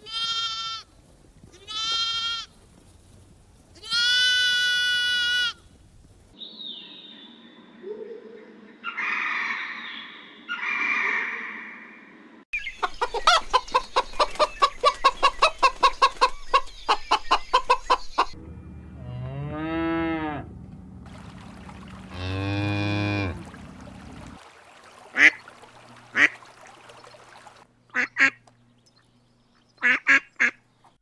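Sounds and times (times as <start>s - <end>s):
hen clucking: 12.6s - 18.4s
cow mooing: 18.8s - 20.9s, 21.9s - 24.4s
duck quacks: 27.9s - 28.4s, 29.8s - 30.6s.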